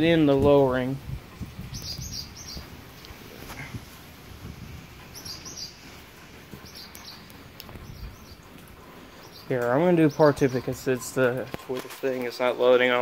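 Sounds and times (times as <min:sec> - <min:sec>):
small bird chirping: 0:01.6 - 0:03.2, 0:05.1 - 0:05.9, 0:06.6 - 0:08.5.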